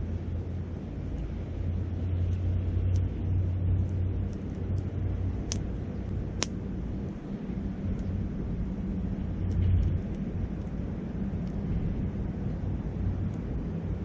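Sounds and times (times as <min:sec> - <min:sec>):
wind rumbling on microphone: 0:00.0 - 0:14.0
burning wood crackling: 0:02.2 - 0:08.4.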